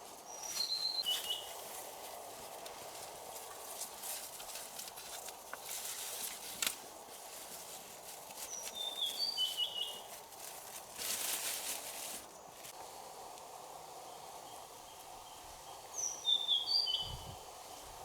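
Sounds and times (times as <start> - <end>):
rustling: 0.0 - 12.8
steady forest hum: 0.0 - 18.0
bird chirping: 0.3 - 1.6, 8.4 - 10.2, 14.4 - 17.3.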